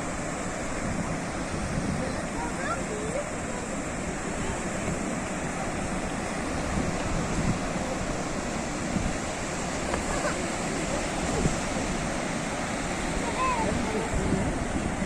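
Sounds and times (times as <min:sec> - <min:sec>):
waves washing on shore: 0:00.0 - 0:15.0.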